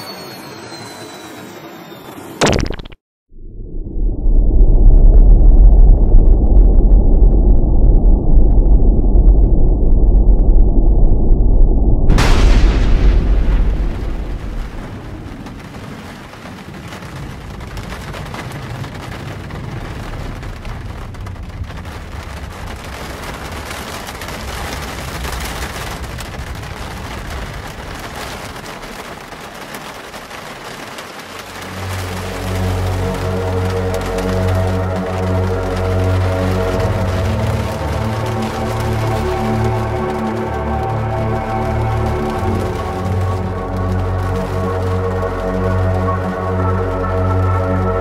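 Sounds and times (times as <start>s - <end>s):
thunder rumble: 3.3s - 48.0s
thunderclap: 4.0s - 46.7s
falling rain hiss: 13.6s - 48.0s.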